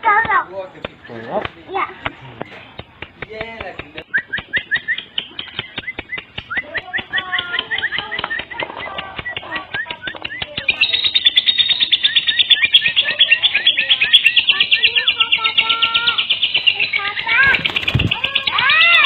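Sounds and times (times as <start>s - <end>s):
lovebird chirping: 3.8s - 19.0s.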